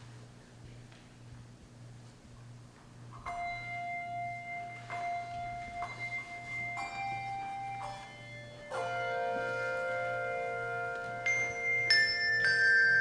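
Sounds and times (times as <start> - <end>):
handbells ringing: 3.3 - 13.0.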